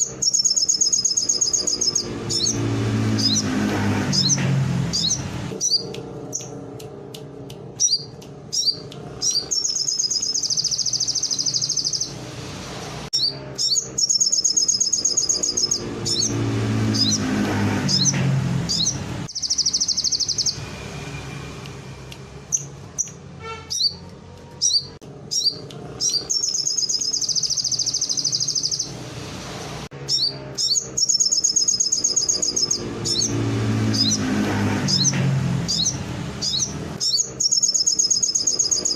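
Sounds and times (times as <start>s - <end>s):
bird singing high rolling trills: 0.0s - 3.6s, 4.2s - 6.6s, 7.8s - 12.2s, 13.2s - 21.4s, 24.6s - 29.0s, 30.0s - 38.9s
short sharp bird chirps: 18.7s - 20.7s, 22.5s - 24.0s.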